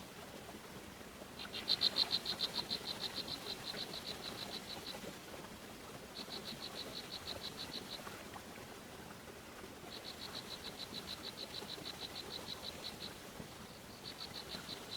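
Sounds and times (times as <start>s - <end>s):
faint outdoor hiss: 0.0s - 14.9s.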